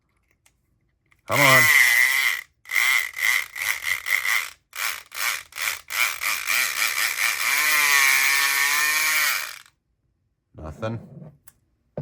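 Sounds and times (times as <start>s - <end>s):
electric pick gun buzzing: 1.3s - 9.7s.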